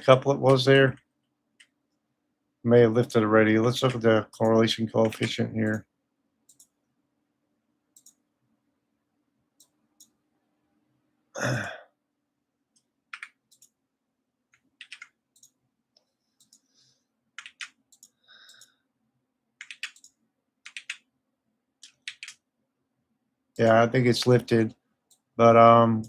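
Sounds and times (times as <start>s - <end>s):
faint steady hum: 0.0s - 26.0s
computer mouse clicking: 3.8s - 5.8s, 6.5s - 6.8s, 7.9s - 8.2s, 9.6s - 10.2s, 12.7s - 13.8s, 14.5s - 16.7s, 17.4s - 18.7s, 19.6s - 21.1s, 21.8s - 22.4s.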